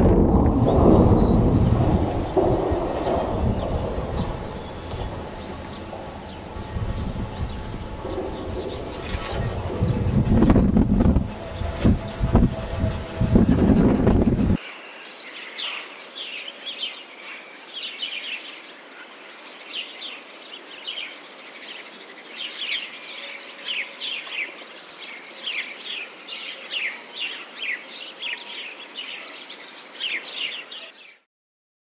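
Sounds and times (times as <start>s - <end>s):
loud low rumble: 0.0s - 14.6s
small birds chirping: 0.4s - 18.8s.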